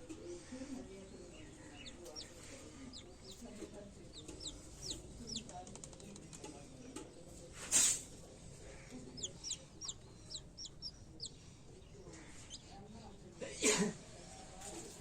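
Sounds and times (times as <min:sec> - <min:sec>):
chick peeping: 0:01.0 - 0:05.6, 0:08.9 - 0:12.8.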